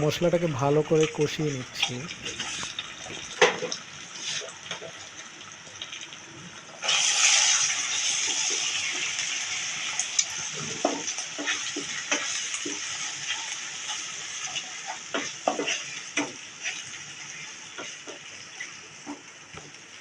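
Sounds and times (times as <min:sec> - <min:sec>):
paste sizzling in hot oil: 0:00.1 - 0:05.1, 0:06.2 - 0:19.5
spatula scraping a pan: 0:10.8 - 0:18.2.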